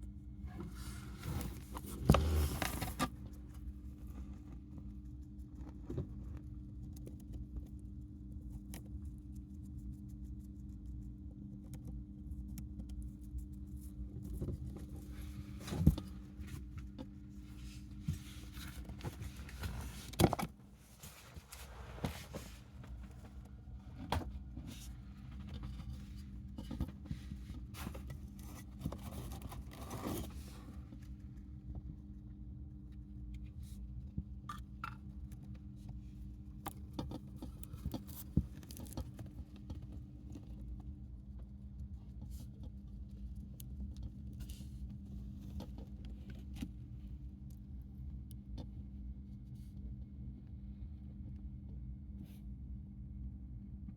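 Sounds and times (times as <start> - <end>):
steady low hum: 0.0 - 53.9
hamster scratching and clicking: 1.3 - 16.1, 34.5 - 48.8.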